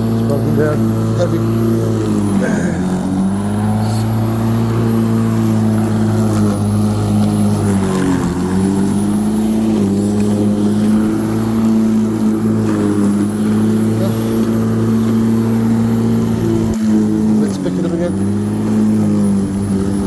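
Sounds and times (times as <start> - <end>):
electric lawnmower running: 0.0 - 20.0.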